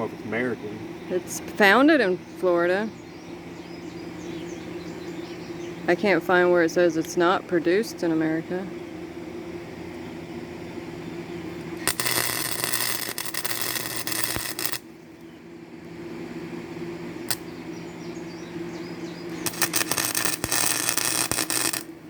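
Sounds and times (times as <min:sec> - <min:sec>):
steady low hum: 0:00.0 - 0:22.0
welding arc crackling: 0:11.6 - 0:15.0, 0:17.2 - 0:17.5, 0:19.3 - 0:22.0.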